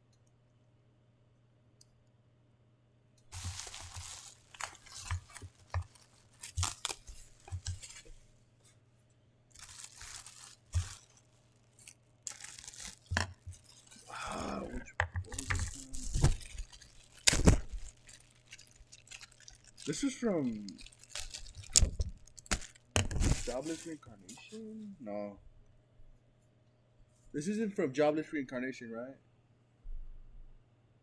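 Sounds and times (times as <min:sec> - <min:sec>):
packaging tearing and rustling: 0:03.3 - 0:08.2, 0:09.6 - 0:24.6.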